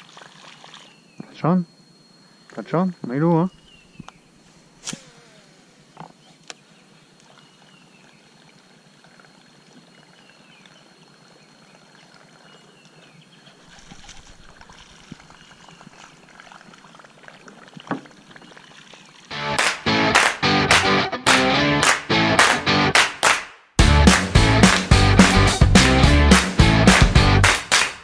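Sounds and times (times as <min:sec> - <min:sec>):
high insect-like drone: 0:04.4 - 0:06.1.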